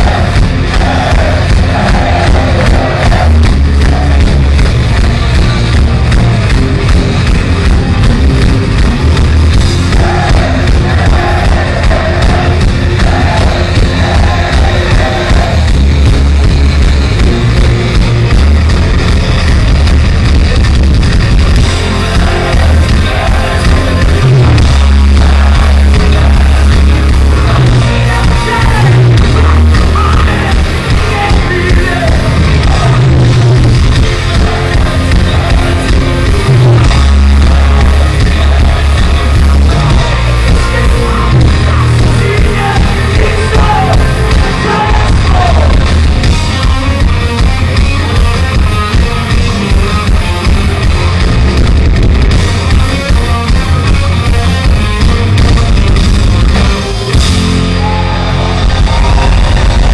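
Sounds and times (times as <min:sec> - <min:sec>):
yelled vocals: 0:00.0 - 0:06.6, 0:09.0 - 0:18.4, 0:21.4 - 0:48.2, 0:54.8 - 0:59.9
heavy metal band playing: 0:00.0 - 0:59.9.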